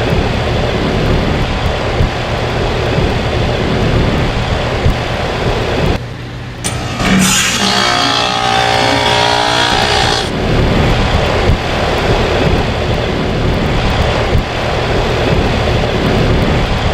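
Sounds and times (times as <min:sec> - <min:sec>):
compressor harsh droning: 0:06.6 - 0:10.8.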